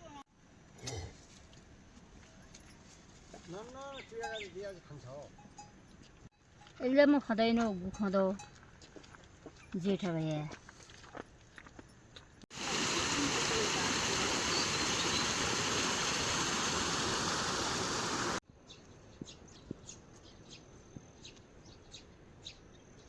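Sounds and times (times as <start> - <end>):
water rushing: 12.5 - 18.4.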